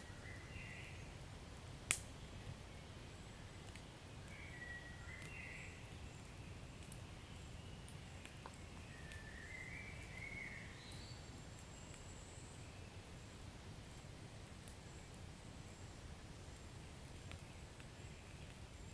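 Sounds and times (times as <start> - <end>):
low fire rumble: 0.0 - 18.9
wood fire crackling and popping: 1.2 - 4.5, 5.2 - 9.3, 11.4 - 12.1, 13.0 - 18.9
faint wavering whistles: 8.9 - 11.2.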